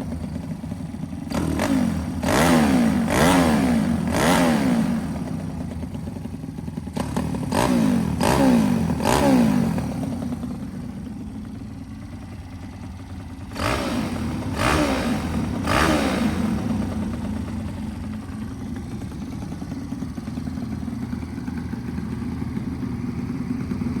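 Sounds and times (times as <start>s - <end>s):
small motorcycle engine idling: 0.0s - 24.0s
engine revving blips: 13.5s - 17.2s.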